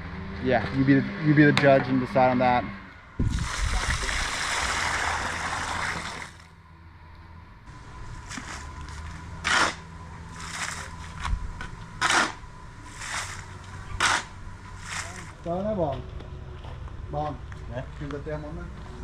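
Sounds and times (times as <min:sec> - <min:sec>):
short splashes: 0:03.2 - 0:06.4
water pouring: 0:03.2 - 0:06.4.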